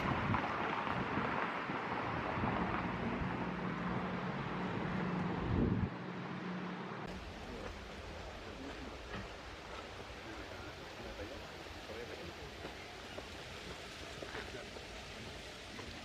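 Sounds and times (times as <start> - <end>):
wind buffeting microphone: 0.0 - 3.6, 5.3 - 5.9
vehicle engine humming: 0.0 - 13.4.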